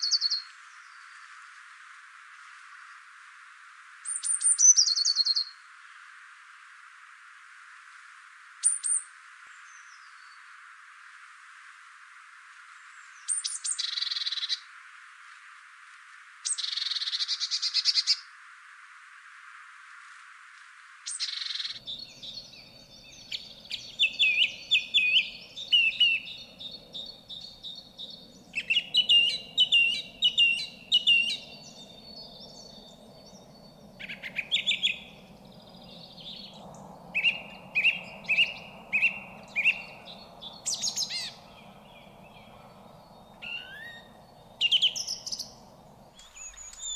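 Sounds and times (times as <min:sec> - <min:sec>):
songbird trilling: 0:00.0 - 0:00.5, 0:04.1 - 0:05.6, 0:13.2 - 0:14.6, 0:16.5 - 0:18.2, 0:21.1 - 0:46.9
bird chirping rapidly: 0:21.2 - 0:36.6, 0:37.2 - 0:45.6, 0:46.2 - 0:46.9.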